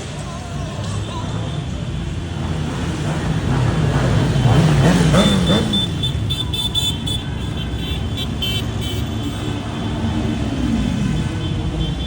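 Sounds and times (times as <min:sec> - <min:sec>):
motorcycle engines rumbling: 0:00.0 - 0:12.0
engine revving: 0:02.3 - 0:08.8.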